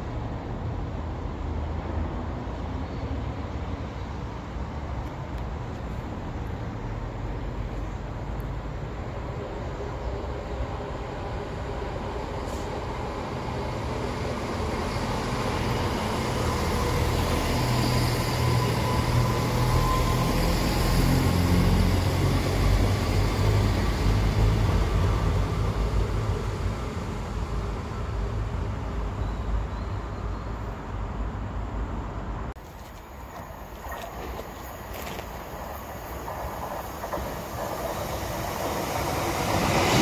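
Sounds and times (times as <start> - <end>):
diesel train engines rumbling: 0.0 - 40.0
train wheels on rails: 7.6 - 29.2, 32.6 - 40.0.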